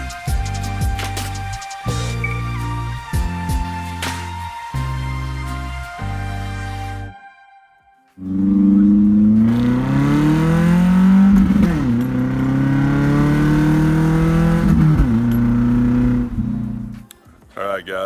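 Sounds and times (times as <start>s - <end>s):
car engine accelerating hard: 8.2s - 17.0s.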